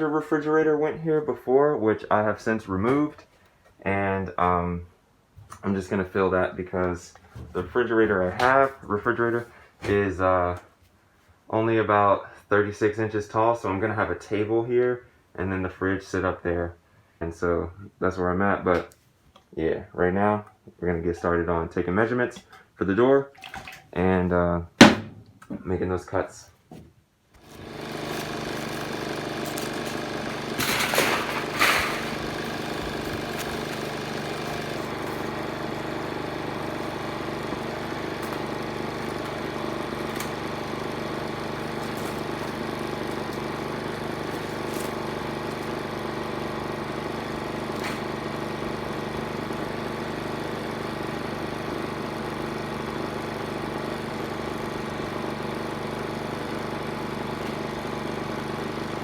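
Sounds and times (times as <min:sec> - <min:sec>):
loud knocks: 0:24.8 - 0:25.3
small engine running: 0:27.4 - 0:59.0.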